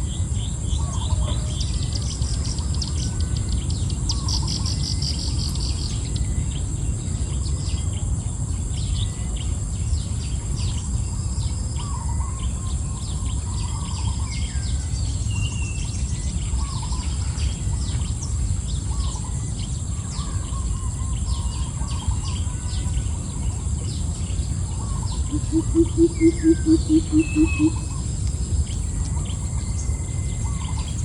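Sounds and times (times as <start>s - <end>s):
low rumbling noise: 0.0s - 31.0s
birds chirping and calling: 11.8s - 31.0s
high-pitched insect drone: 20.0s - 31.0s.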